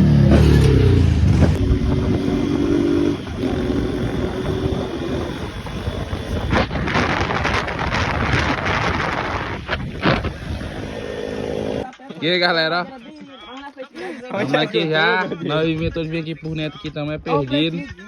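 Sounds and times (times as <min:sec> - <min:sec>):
motorcycle engine running: 0:00.0 - 0:11.8
rushing rattling noise: 0:00.3 - 0:11.8.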